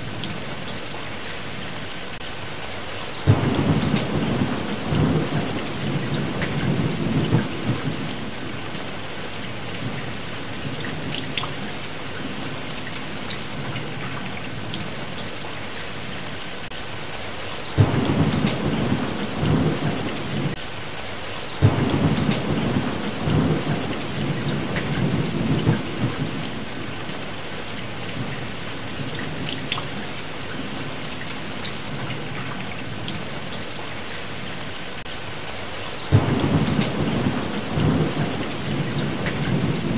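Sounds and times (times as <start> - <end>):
heavy rain: 0.0 - 39.9
thunderclaps: 3.3 - 8.5, 17.8 - 20.6, 21.6 - 26.8, 36.1 - 39.9
thunder rumbling: 3.3 - 9.0, 17.8 - 20.6, 21.6 - 27.0, 36.1 - 39.9.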